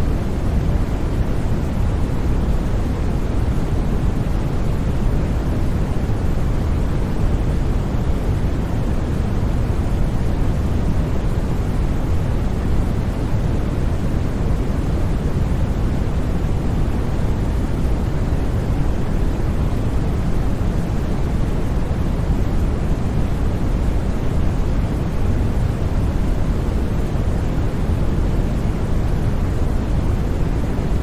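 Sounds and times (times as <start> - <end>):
synthetic white noise: 0.0 - 31.0.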